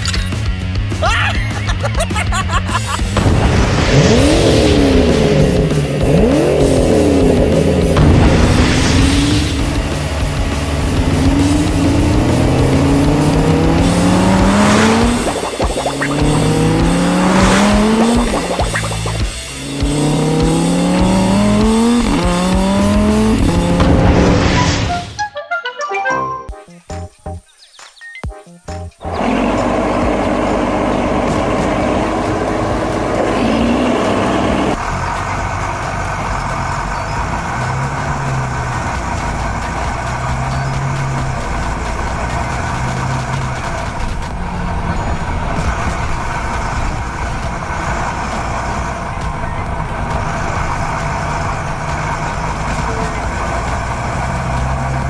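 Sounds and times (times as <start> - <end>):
background music: 0.0 - 55.0
cartoon engine revving up: 1.0 - 10.2, 10.9 - 25.0, 29.0 - 34.8.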